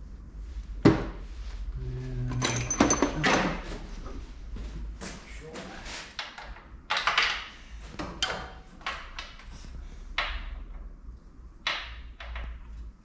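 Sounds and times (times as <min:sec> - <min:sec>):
tools and metal parts clanking: 0:02.2 - 0:03.8, 0:06.2 - 0:09.6.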